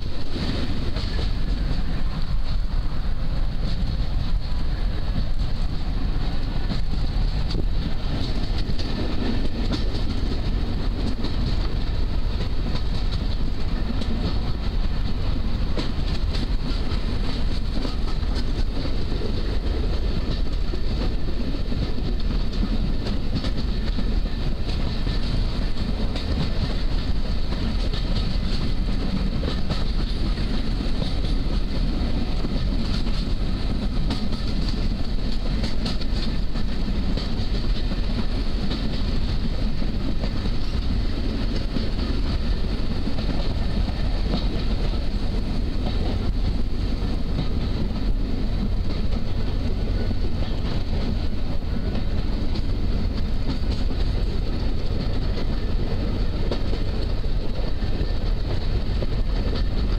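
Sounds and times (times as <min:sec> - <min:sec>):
train running rumble: 0:00.0 - 0:59.9
wheels clattering over rails: 0:03.6 - 0:59.9.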